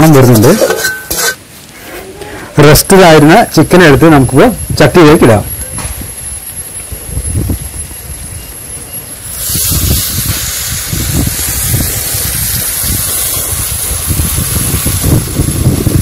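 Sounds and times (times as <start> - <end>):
wind rumbling on microphone: 4.4 - 16.0
chicken sizzling in hot oil: 9.2 - 16.0.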